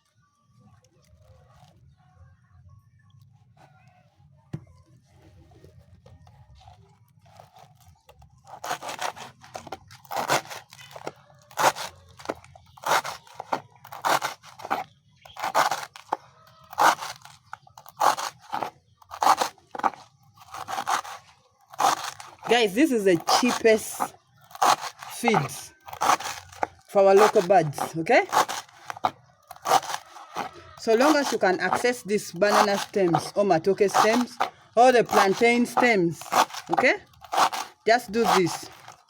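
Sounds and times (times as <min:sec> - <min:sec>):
blade chopping banana stem: 0:08.4 - 0:39.0.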